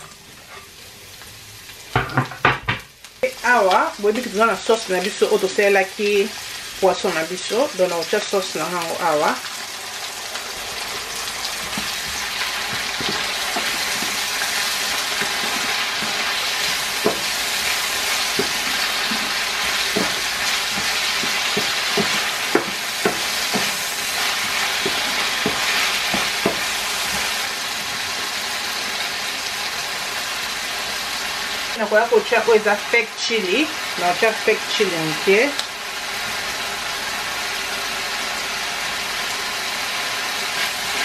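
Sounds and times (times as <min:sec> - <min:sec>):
vegetables sizzling in frying pan: 0:00.0 - 0:41.0
wooden spoon knocking pan: 0:02.0 - 0:02.9, 0:15.1 - 0:27.3.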